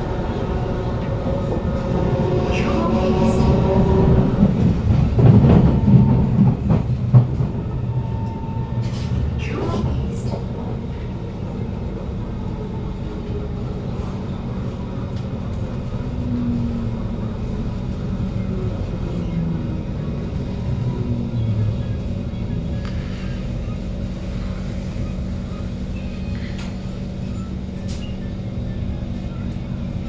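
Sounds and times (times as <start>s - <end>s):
train wheels rumbling and clicking: 0.0s - 30.0s
low hum: 11.5s - 28.4s.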